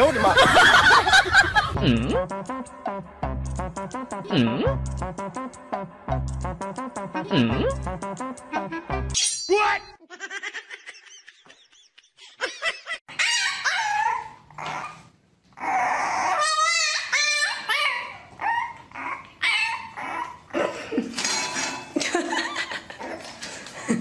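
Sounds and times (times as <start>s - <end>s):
puppy whining and yelping: 13.1s - 20.6s.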